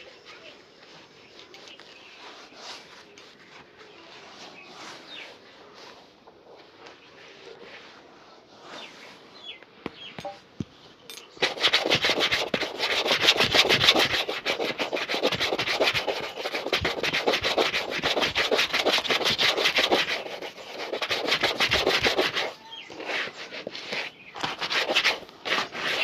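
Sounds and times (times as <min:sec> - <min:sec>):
shoe buffing strokes: 0:11.4 - 0:26.0.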